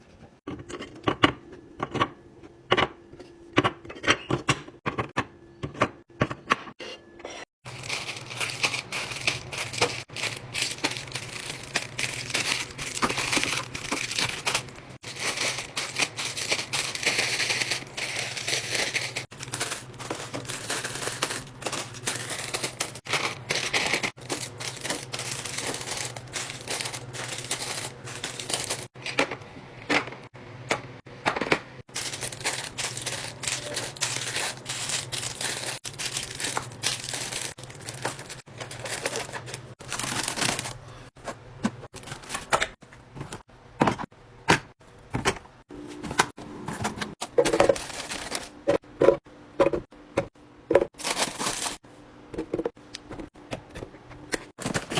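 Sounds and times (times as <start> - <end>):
plastic packaging clicking and crinkling: 7.7 - 29.4, 31.4 - 43.4, 47.1 - 48.7, 50.8 - 51.8, 54.2 - 54.9.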